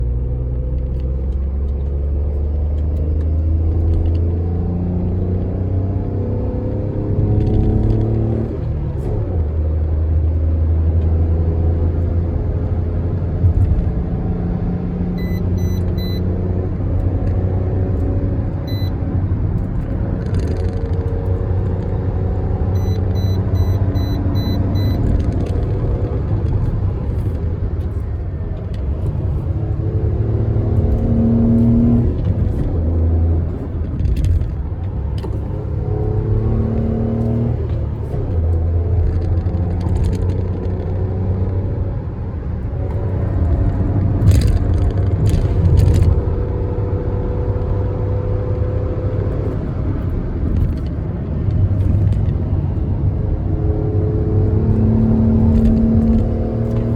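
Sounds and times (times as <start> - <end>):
tyre and road noise: 0.0 - 56.9
car engine running: 11.5 - 56.9.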